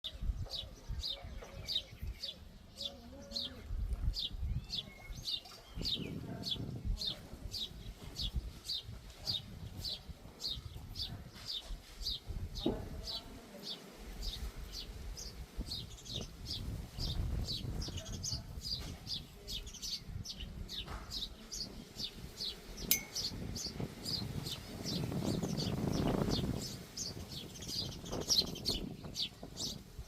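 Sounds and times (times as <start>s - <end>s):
small bird chirping: 14.2s - 30.0s.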